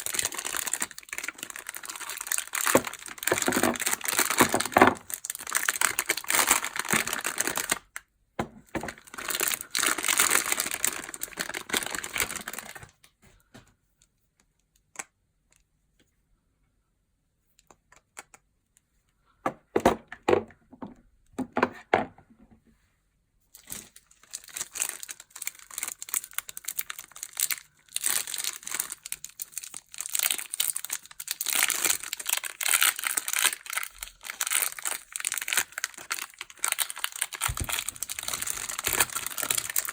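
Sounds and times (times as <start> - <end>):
wrappers crinkling and tearing: 0.0 - 7.9, 8.9 - 13.0, 23.6 - 39.9.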